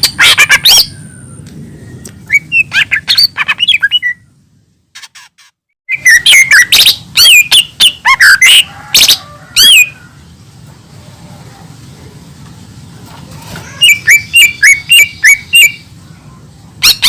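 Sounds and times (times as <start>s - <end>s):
bird whistling and chirping: 0.0s - 4.4s, 5.9s - 8.7s, 13.8s - 15.9s.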